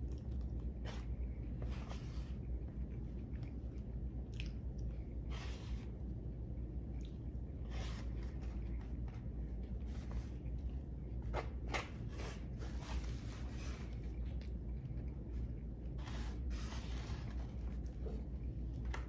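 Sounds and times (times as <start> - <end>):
steady low hum: 0.0 - 19.0
person chewing: 4.2 - 4.9.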